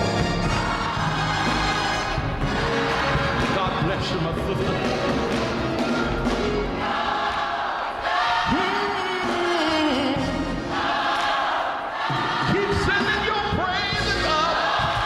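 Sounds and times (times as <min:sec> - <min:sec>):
instrumental music: 0:00.0 - 0:07.5
gospel choir singing: 0:00.0 - 0:15.0.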